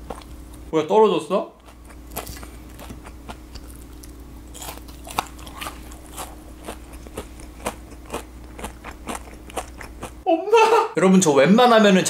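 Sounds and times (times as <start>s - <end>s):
crunchy food chewing: 0.0s - 0.7s, 1.6s - 10.2s.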